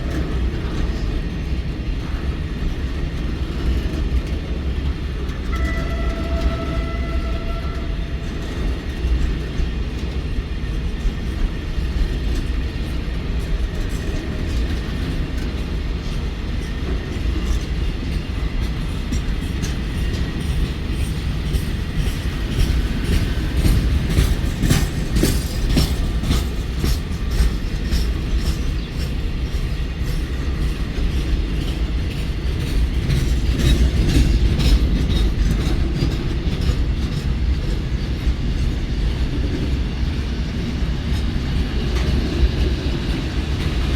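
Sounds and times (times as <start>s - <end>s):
train rumbling on track: 0.0s - 43.9s.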